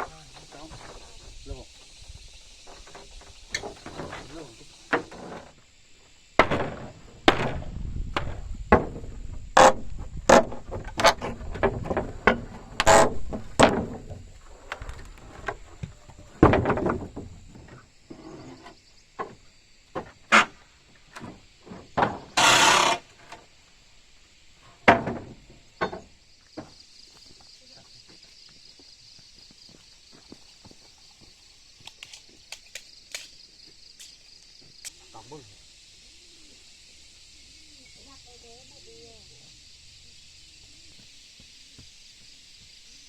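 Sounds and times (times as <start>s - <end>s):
knocks on wooden timber: 6.4s - 14.2s, 15.4s - 17.7s, 24.8s - 26.7s
scraping rasp: 22.0s - 23.1s.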